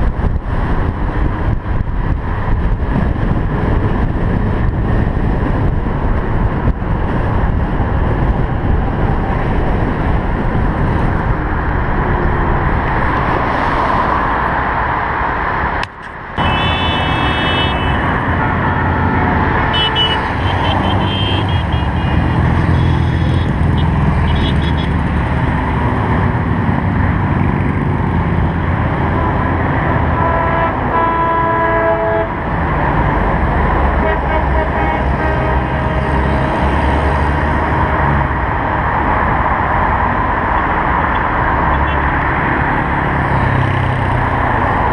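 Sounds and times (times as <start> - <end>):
cars and trucks driving past: 0.0 - 44.9
car horn toots: 16.4 - 25.0, 29.1 - 32.3, 34.0 - 36.2.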